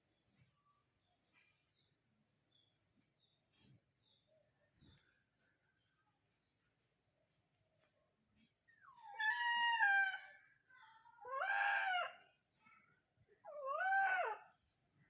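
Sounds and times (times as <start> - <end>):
animal wailing cries: 9.0 - 10.4, 11.2 - 12.2, 13.5 - 14.5.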